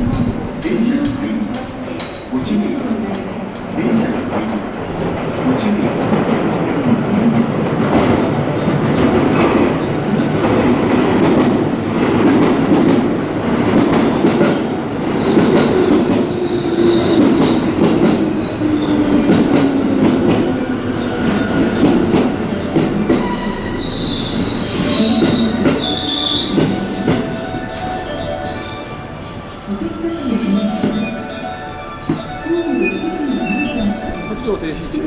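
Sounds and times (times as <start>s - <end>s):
electric train braking: 13.8s - 35.0s
brake and wheel squeals: 18.2s - 20.0s, 21.0s - 33.9s.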